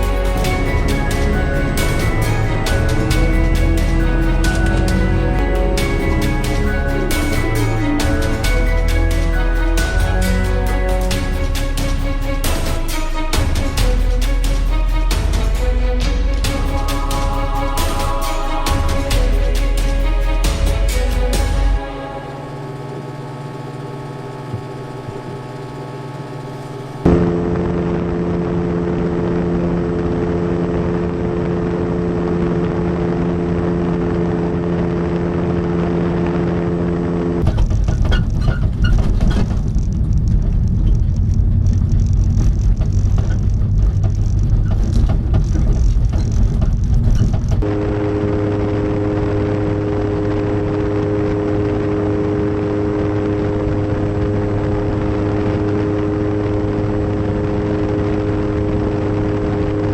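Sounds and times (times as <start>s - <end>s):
music: 0.0s - 31.6s, 47.6s - 59.9s
motor drone: 0.0s - 37.5s, 47.6s - 59.9s
fluttering low rumble: 0.0s - 59.9s.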